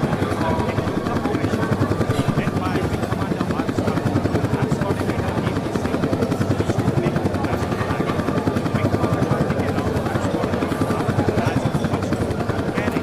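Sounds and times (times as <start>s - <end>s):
helicopters flying past: 0.0s - 13.0s.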